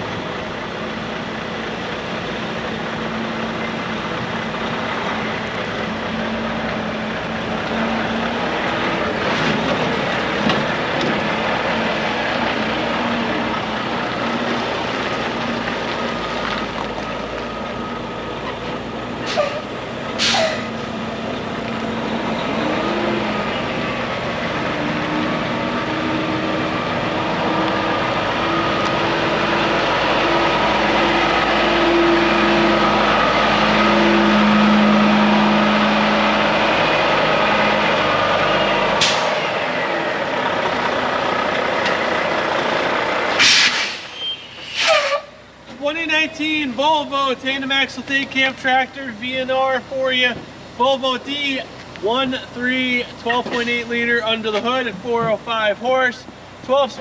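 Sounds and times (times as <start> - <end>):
truck diesel engine running: 0.0 - 44.3
sharp air hisses: 20.2 - 20.7, 43.4 - 45.2.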